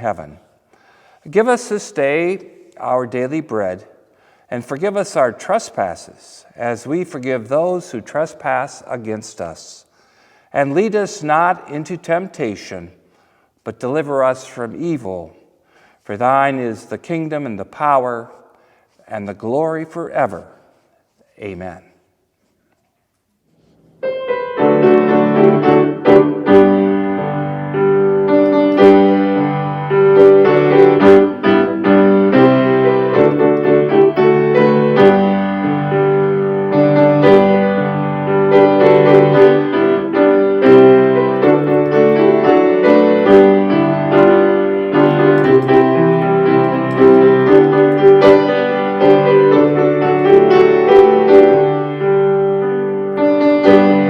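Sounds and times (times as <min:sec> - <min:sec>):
piano playing: 0:24.0 - 0:54.0.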